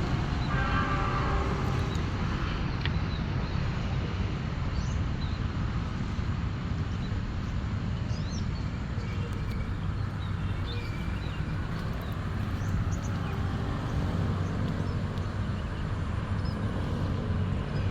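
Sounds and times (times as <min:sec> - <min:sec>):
small birds chirping: 0:08.1 - 0:16.6
outdoor rushing rumble: 0:09.3 - 0:17.9.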